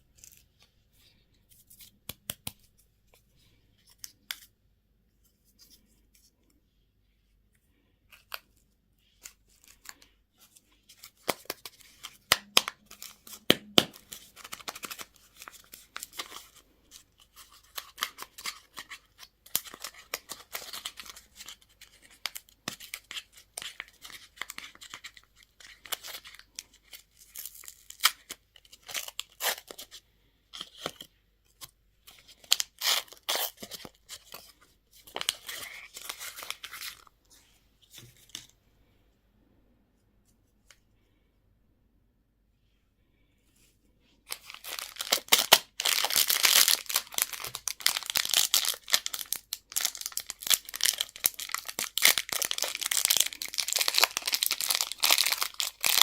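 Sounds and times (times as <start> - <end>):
plastic packaging crinkling: 44.3 - 56.0.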